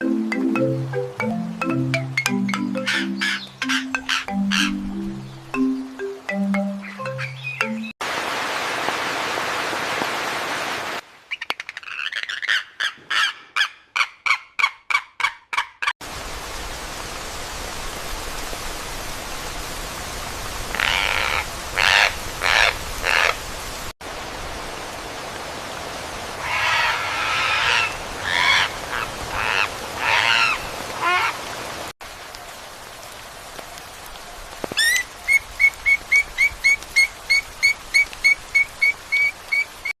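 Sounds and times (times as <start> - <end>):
high whistled bird notes: 1.7 - 6.0
repeated bird calls: 2.4 - 8.0
harsh squawking bird calls: 2.7 - 4.8, 11.3 - 15.6, 20.8 - 23.4, 26.4 - 31.4.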